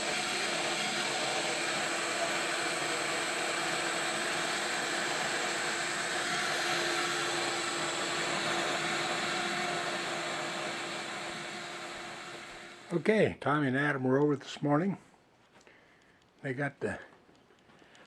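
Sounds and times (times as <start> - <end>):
air blower running: 0.0 - 13.2.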